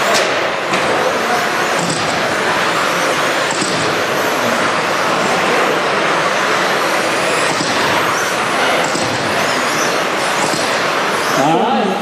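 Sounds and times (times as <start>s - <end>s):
rc truck motors whining: 0.7s - 11.7s.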